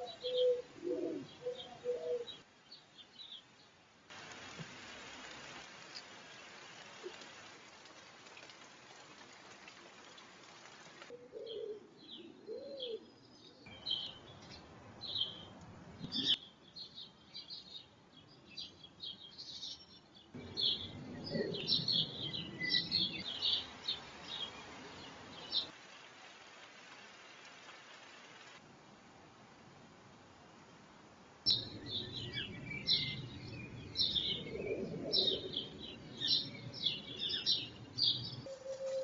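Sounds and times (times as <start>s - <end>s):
steady hiss: 4.1s - 11.1s, 23.2s - 31.5s
small birds chirping: 11.4s - 25.9s, 31.5s - 38.6s.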